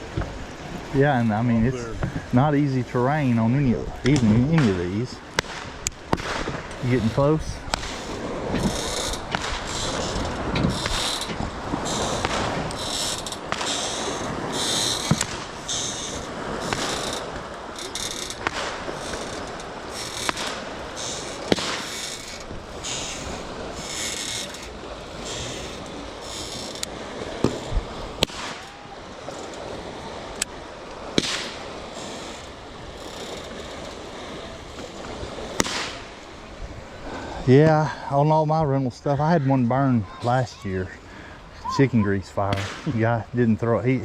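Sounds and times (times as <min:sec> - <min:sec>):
steady background hiss: 0:00.0 - 0:44.0
fireworks popping: 0:04.0 - 0:23.2, 0:27.4 - 0:28.8, 0:31.2 - 0:32.4, 0:35.5 - 0:36.2, 0:42.5 - 0:43.2
firecrackers crackling: 0:04.0 - 0:32.4, 0:34.7 - 0:36.3, 0:42.2 - 0:43.9.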